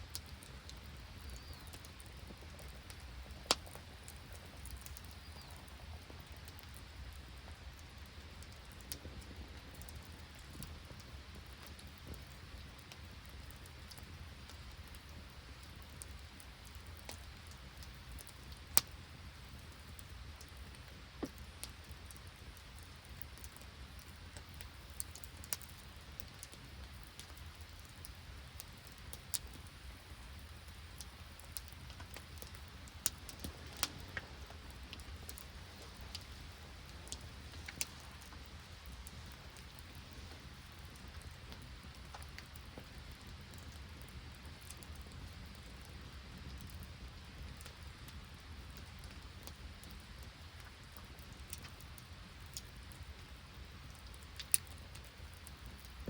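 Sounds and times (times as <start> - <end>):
rain and sleet falling: 0.0 - 56.0
low steady rumble: 29.6 - 43.4.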